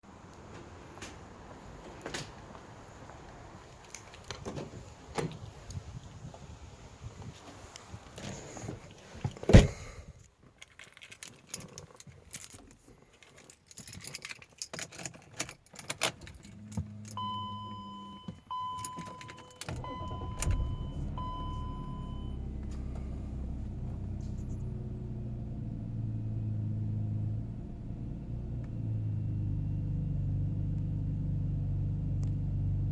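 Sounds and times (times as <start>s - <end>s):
keys jangling and clicking: 3.7s - 4.5s, 10.2s - 17.2s, 18.8s - 19.8s
car door thudding shut: 9.3s - 9.9s
car engine starting and idling: 16.3s - 32.9s
ignition beeps: 17.1s - 22.9s.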